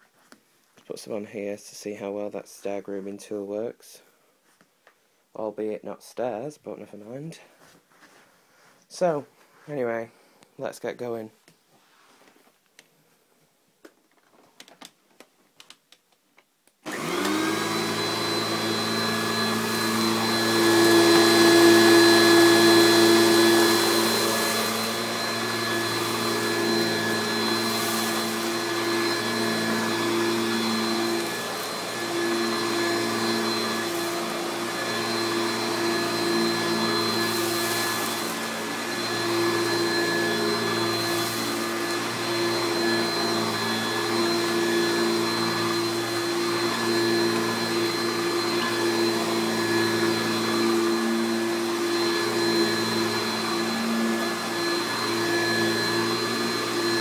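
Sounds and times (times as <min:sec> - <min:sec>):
upright vacuum cleaner running: 0:16.8 - 0:57.0.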